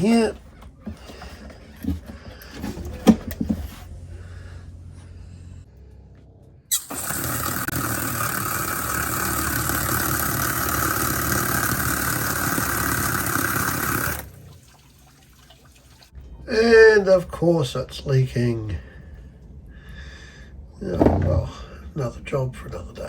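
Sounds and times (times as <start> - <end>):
water pump running: 6.7 - 16.1.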